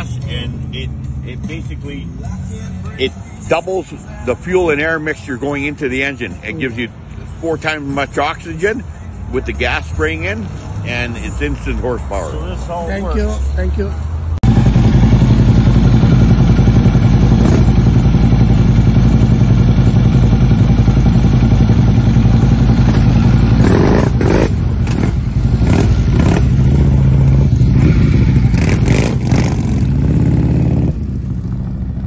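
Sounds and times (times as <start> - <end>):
motorcycle engine running: 14.4 - 32.0.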